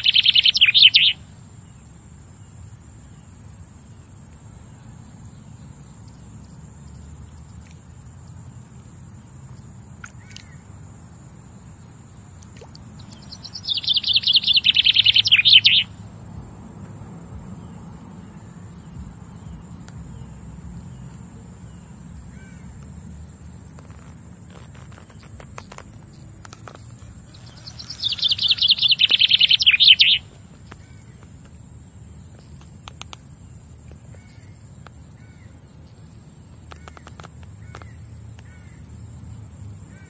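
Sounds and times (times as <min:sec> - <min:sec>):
birds chirping: 0:00.0 - 0:10.8, 0:11.8 - 0:38.9
steady high hiss: 0:00.0 - 0:39.0
bird rattling trill: 0:13.0 - 0:15.9, 0:26.6 - 0:30.3.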